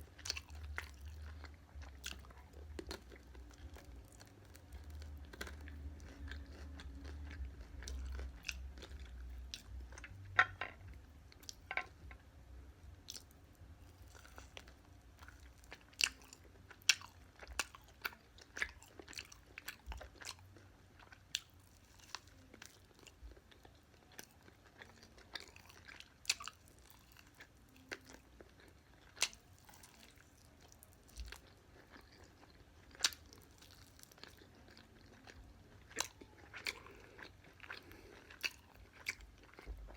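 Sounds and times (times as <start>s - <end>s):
crunchy chewing: 0.1s - 10.2s, 21.0s - 39.9s
wet chewing: 21.0s - 39.9s.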